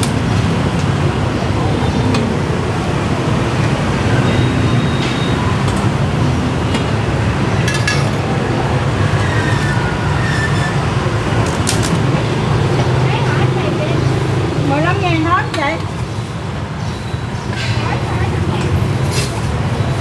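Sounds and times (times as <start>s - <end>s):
street traffic noise: 0.0s - 20.0s
sharp clinks and knocks: 7.6s - 8.4s.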